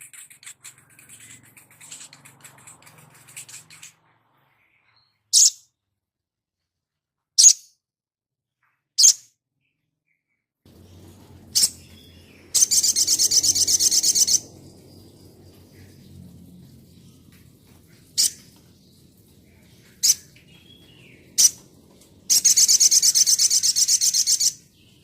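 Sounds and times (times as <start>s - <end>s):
songbird chips: 0.0s - 4.0s
fast high bird trill: 11.5s - 14.5s.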